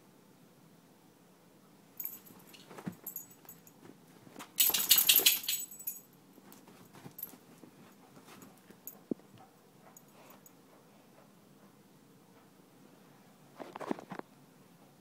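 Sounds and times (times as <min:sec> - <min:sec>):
clicks and jingling: 0:02.0 - 0:03.8, 0:04.4 - 0:07.5
dog and kitten scuffling: 0:02.0 - 0:11.8.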